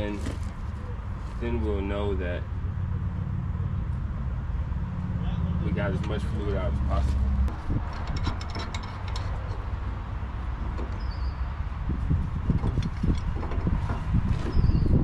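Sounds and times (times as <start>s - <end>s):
clunks and rattles: 0.0s - 1.2s, 5.8s - 15.0s
forklift engine humming: 0.0s - 15.0s.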